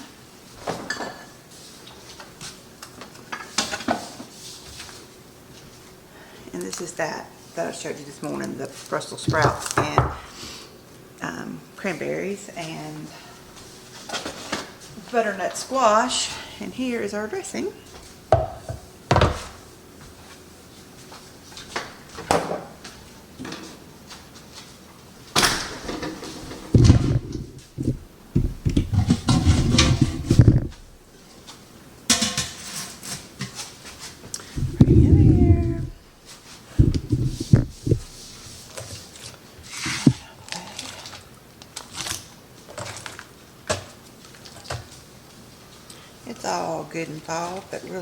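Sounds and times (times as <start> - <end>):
dishes and pan knocking on counter: 18.3 - 19.6.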